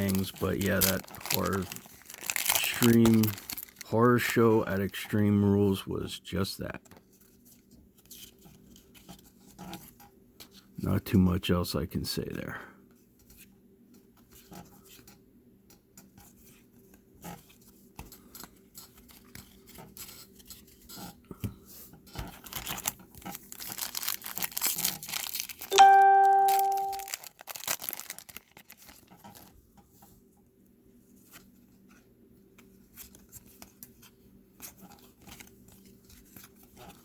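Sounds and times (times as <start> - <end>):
wrapper tearing and crinkling: 0.0 - 4.5, 22.4 - 29.5
cards rustling: 0.0 - 5.1, 22.2 - 29.5
bell-like ding: 25.7 - 27.1.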